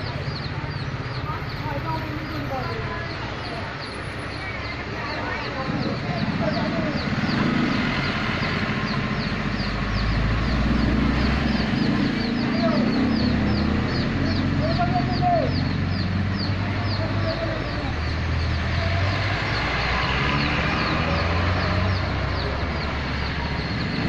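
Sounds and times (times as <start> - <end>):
chickens calling: 0.0 - 24.0
low engine rumble: 0.0 - 24.0.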